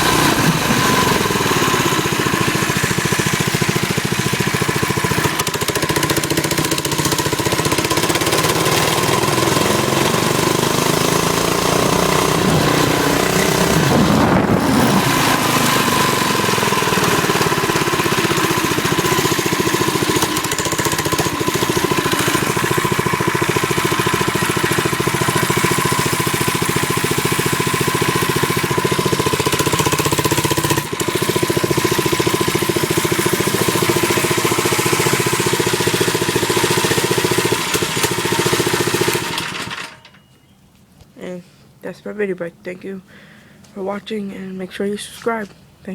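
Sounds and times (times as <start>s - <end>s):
minibike engine running: 0.0s - 40.2s.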